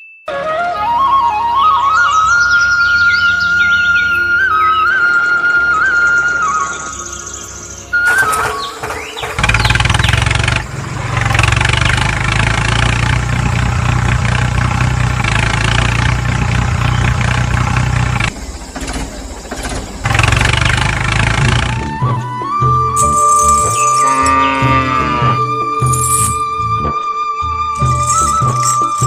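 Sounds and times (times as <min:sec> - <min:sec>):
engine running steadily: 0:08.1 - 0:26.8, 0:27.8 - 0:29.0.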